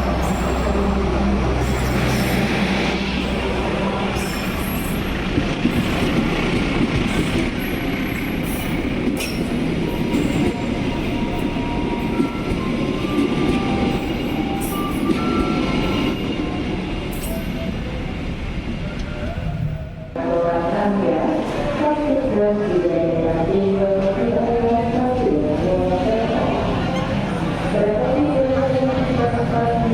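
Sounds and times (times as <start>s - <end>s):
train wheels rumbling on rails: 0.0s - 20.2s.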